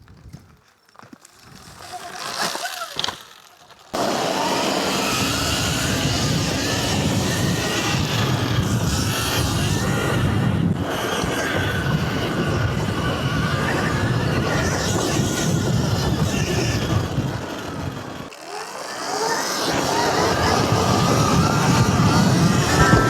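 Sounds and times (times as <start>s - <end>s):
heavy rushing noise: 4.0s - 18.0s, 19.6s - 23.0s
electric motor whine: 4.0s - 23.0s.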